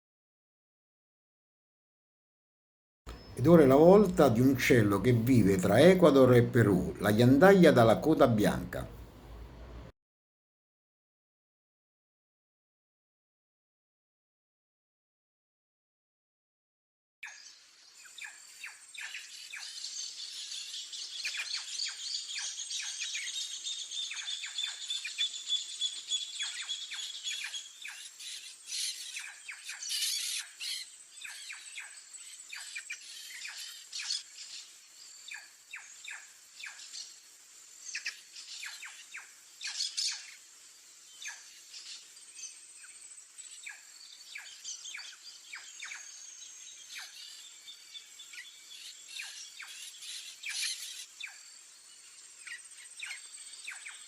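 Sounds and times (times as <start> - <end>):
jay calling: 3.1 - 9.0
chorus of birds chirping: 3.1 - 9.9, 17.2 - 54.0
high insect buzz: 30.0 - 54.0.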